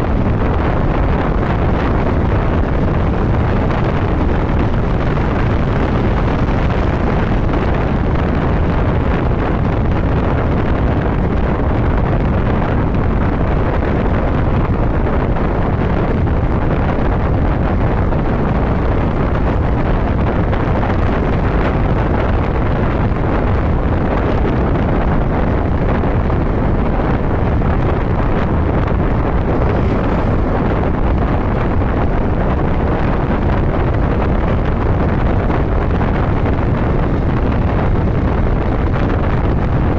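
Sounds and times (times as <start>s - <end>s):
wind rush on microphone: 0.0s - 39.9s
motorcycle engine: 26.4s - 32.8s.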